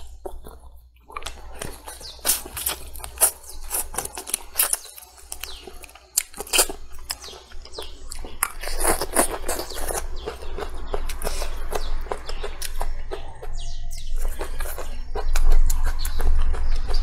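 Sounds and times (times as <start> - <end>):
chewing and lip-smacking: 0.0 - 17.0
small birds chirping: 0.0 - 17.0.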